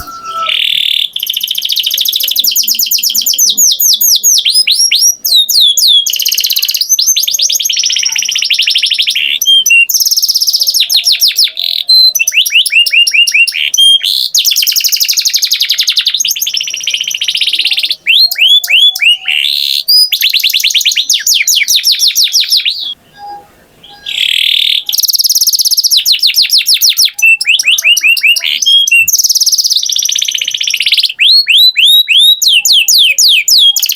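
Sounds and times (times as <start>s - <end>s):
canary singing trills: 0.0s - 33.9s.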